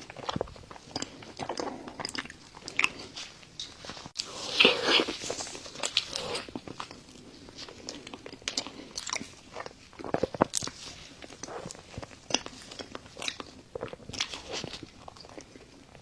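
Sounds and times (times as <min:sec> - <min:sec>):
person chewing with mouth clicks: 0:00.0 - 0:16.0.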